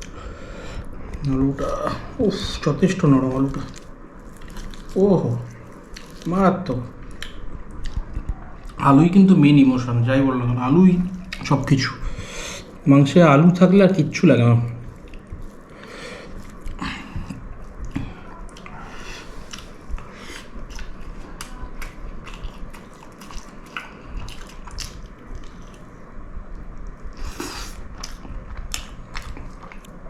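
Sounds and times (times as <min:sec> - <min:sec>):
person chewing food: 0:03.2 - 0:08.8, 0:11.0 - 0:12.8, 0:14.8 - 0:30.0.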